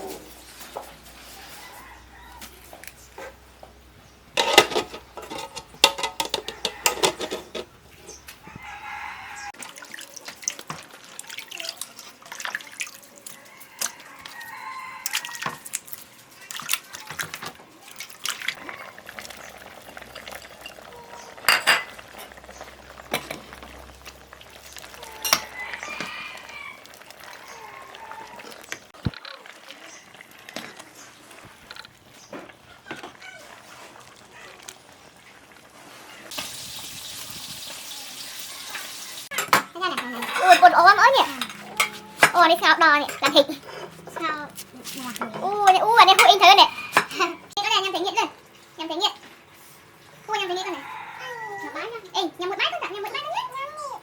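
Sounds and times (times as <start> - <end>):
rooster crowing: 1.3 - 2.8, 6.4 - 7.4, 8.4 - 9.6, 13.3 - 15.7, 25.0 - 28.7, 46.6 - 47.5, 50.6 - 52.0
hens clucking: 22.0 - 28.9.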